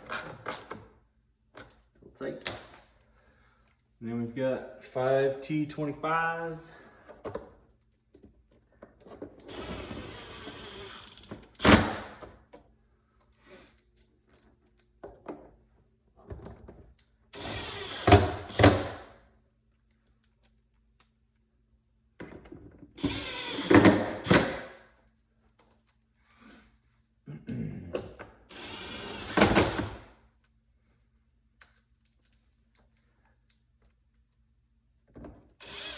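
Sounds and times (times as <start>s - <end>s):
power drill driving screws: 9.5s - 12.2s, 17.4s - 19.1s, 23.0s - 24.7s, 28.5s - 30.0s, 35.6s - 35.9s.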